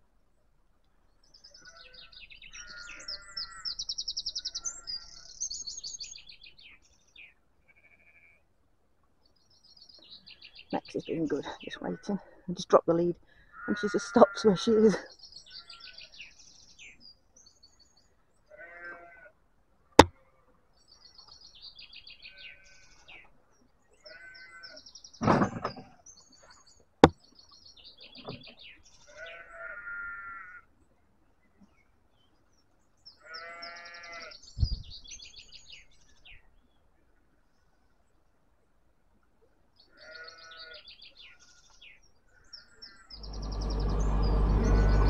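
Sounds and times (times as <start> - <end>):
birds chirping: 1.2 - 8.3, 9.6 - 19.0, 24.0 - 29.7, 40.0 - 45.0
sheep bleating: 1.6 - 3.7, 7.7 - 8.4, 13.6 - 15.0, 18.5 - 19.3, 24.0 - 24.8, 29.1 - 30.6, 33.2 - 34.4, 39.9 - 40.9.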